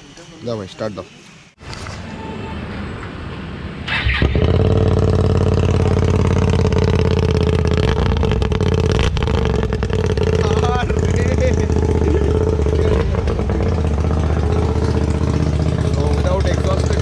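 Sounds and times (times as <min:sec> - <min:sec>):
motorcycle engine starting and running: 0:03.8 - 0:17.0.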